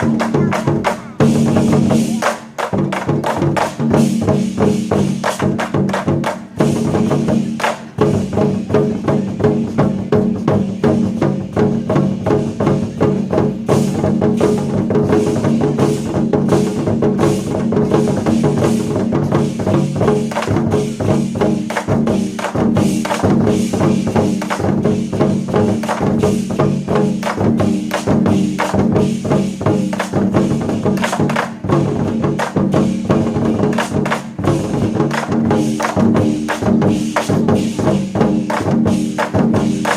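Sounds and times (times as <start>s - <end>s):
war drums beaten rapidly: 0.0s - 39.9s.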